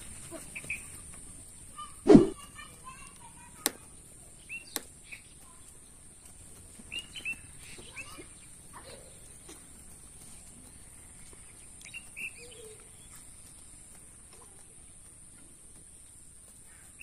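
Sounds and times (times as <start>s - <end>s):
small birds chirping: 0.0s - 17.0s
loud thump: 2.1s - 2.4s.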